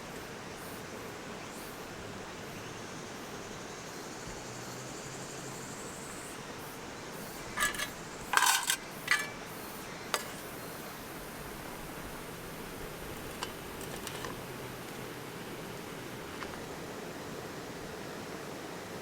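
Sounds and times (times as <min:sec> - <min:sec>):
metal objects clinking: 0:07.5 - 0:09.4, 0:10.2 - 0:10.5, 0:13.2 - 0:14.5.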